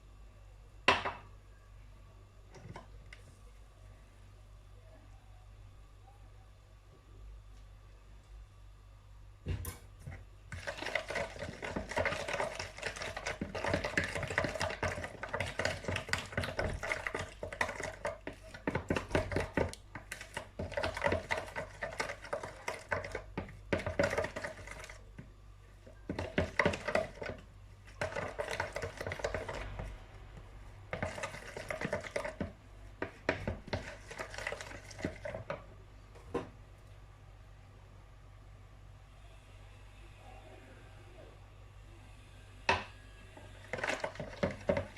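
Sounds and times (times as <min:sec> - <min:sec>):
utensil scraping a bowl: 0:10.5 - 0:25.2, 0:26.0 - 0:30.0, 0:30.9 - 0:35.6.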